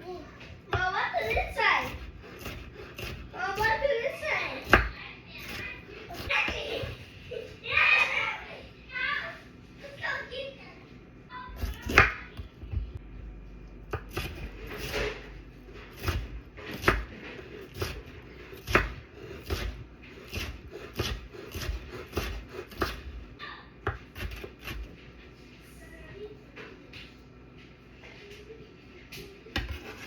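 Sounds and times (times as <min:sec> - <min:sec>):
knife chopping on cutting board: 0:00.7 - 0:03.9, 0:04.6 - 0:07.0, 0:11.6 - 0:12.9, 0:13.9 - 0:23.2, 0:23.8 - 0:25.0, 0:29.6 - 0:30.0.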